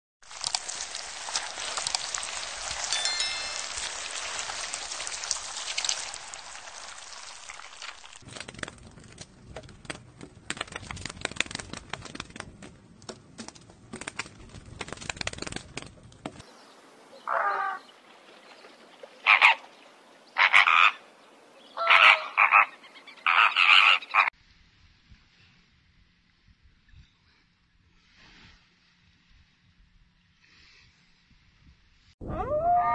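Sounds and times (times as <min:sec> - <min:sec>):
irregular crackling: 0:00.2 - 0:16.4.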